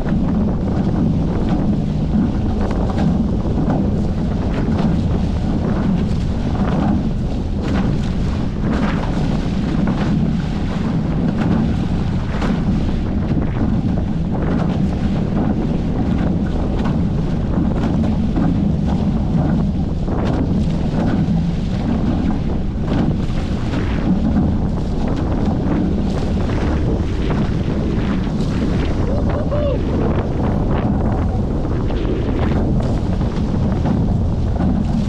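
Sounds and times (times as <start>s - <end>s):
short water splashes: 0.0s - 35.0s
water rushing along hulls: 0.0s - 35.0s
wind buffeting microphone: 0.0s - 35.0s.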